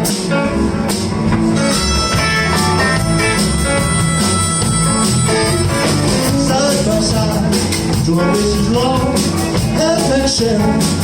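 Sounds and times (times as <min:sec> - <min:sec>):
bass: 0:00.0 - 0:11.0
drums: 0:00.0 - 0:11.0
electric guitar: 0:00.0 - 0:11.0
held high guitar note: 0:01.6 - 0:06.3.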